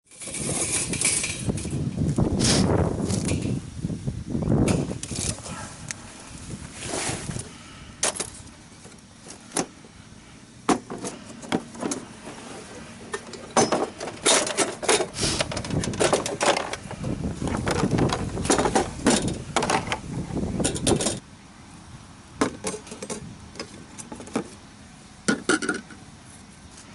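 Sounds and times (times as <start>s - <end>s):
hard objects clattering and knocking: 13.1s - 17.0s.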